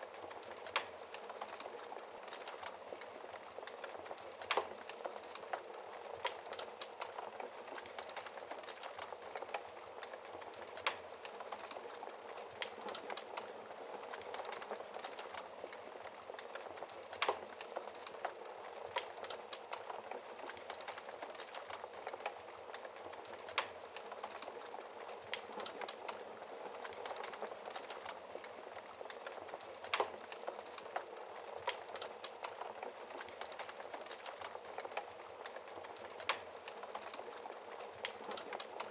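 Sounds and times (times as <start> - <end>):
fire crackling: 0.0 - 38.9.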